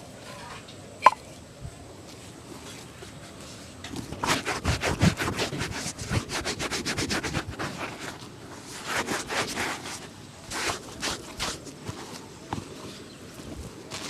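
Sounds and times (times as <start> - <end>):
shoe being buffed: 4.0 - 12.2.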